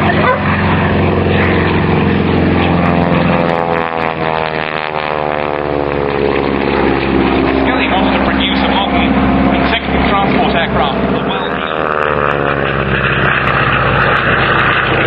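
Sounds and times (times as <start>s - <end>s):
propeller aircraft in flight: 0.0s - 15.0s.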